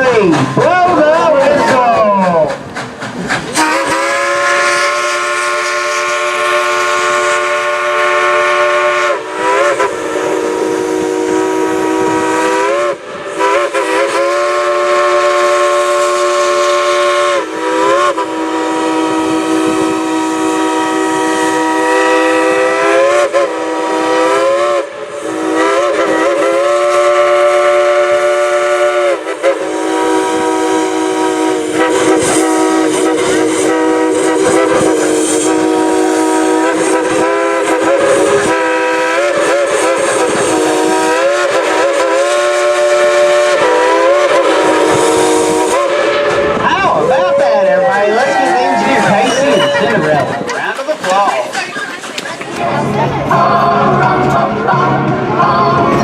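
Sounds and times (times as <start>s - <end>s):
steam whistle chords: 3.6s - 50.0s.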